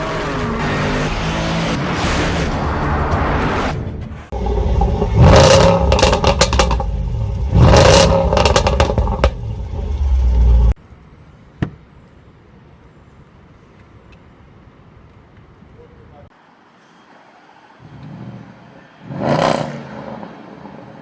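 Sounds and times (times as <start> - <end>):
car engine revving: 0.0 - 10.8
exhaust pops and crackles: 4.7 - 7.0, 7.7 - 9.5.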